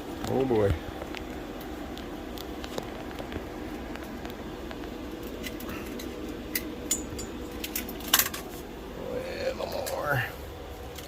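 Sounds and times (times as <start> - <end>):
metallic clinks: 5.8 - 8.4.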